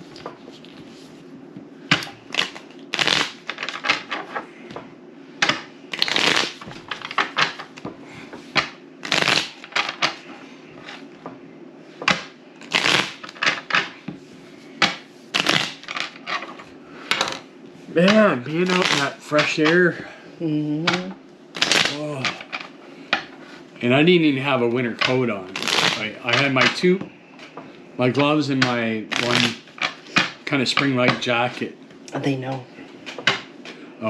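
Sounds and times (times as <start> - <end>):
playing cards shuffling: 0.0 - 1.3, 1.9 - 4.8, 5.4 - 11.1, 12.0 - 19.9, 21.6 - 22.7, 25.0 - 26.8, 28.2 - 31.6.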